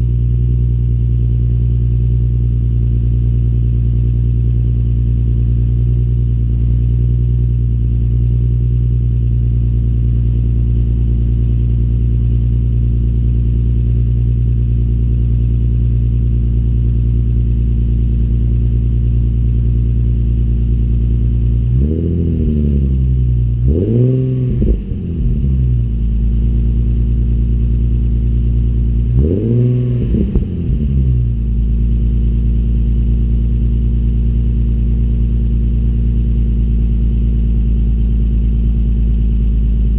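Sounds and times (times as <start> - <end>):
car engine idling: 0.0 - 39.9
engine revving on throttle blips: 21.7 - 25.9, 29.0 - 31.4.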